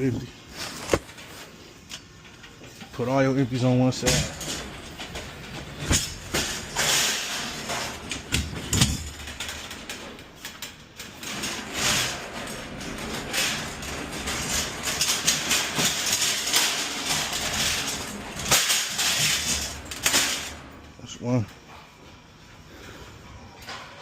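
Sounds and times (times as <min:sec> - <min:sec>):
containers dragged and stacked: 0:04.0 - 0:10.0, 0:11.0 - 0:20.9.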